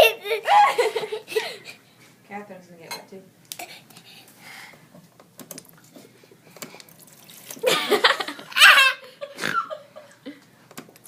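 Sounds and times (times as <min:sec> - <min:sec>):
people laughing: 0:00.0 - 0:01.8, 0:07.6 - 0:10.4.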